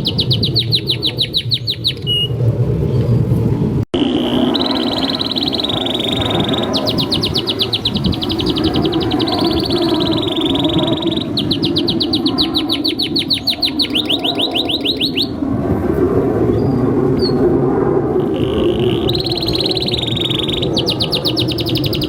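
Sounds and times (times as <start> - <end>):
canary singing trills: 0.0 - 2.4, 4.0 - 15.4, 18.2 - 22.0.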